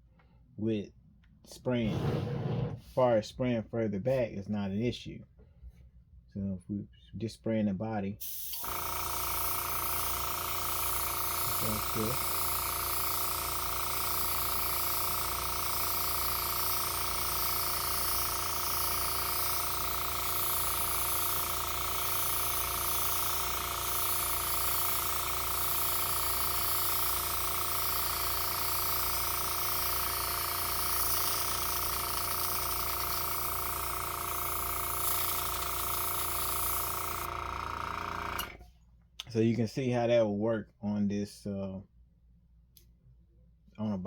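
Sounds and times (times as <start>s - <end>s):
airbrush hissing: 1.8s - 2.9s, 8.2s - 37.3s
compressor humming: 8.6s - 38.6s.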